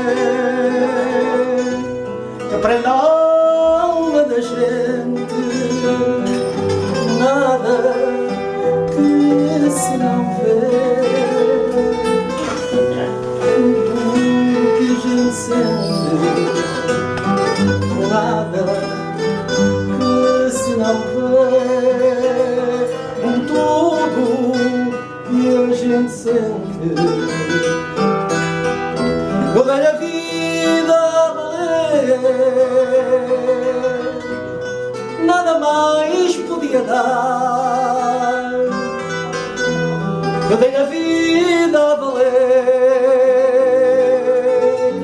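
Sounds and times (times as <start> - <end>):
plucked guitar melody: 0.0 - 45.0
strummed guitar accompaniment: 0.0 - 45.0.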